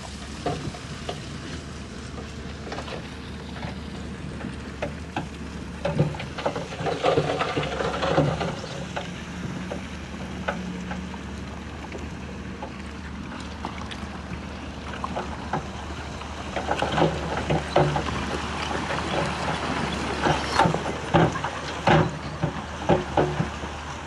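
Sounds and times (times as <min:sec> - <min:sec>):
heavy diesel machinery running: 0:00.0 - 0:24.0
clanks of steel tracks and stone: 0:04.8 - 0:11.2, 0:15.2 - 0:24.0.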